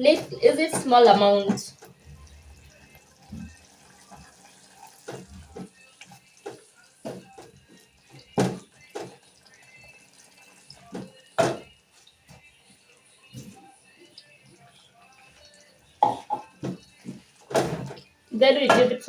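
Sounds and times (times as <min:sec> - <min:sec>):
liquid splashing into a pot: 0:01.7 - 0:12.5.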